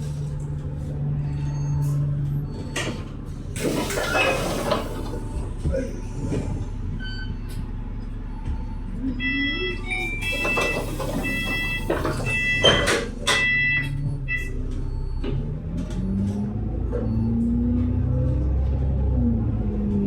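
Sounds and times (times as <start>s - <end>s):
bus engine drone: 0.0s - 20.0s
short electronic beeps: 8.6s - 12.8s.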